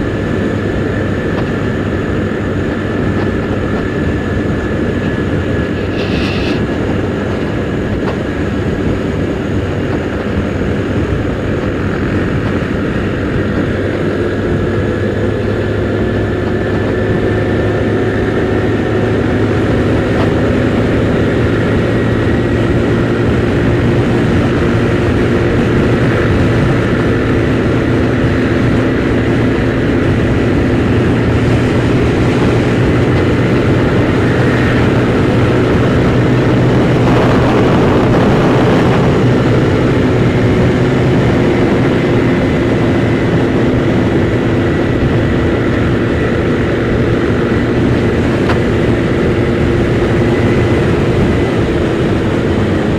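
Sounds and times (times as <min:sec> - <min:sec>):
scooter engine running: 0:00.0 - 0:52.9
wind rushing over microphone: 0:00.0 - 0:52.9.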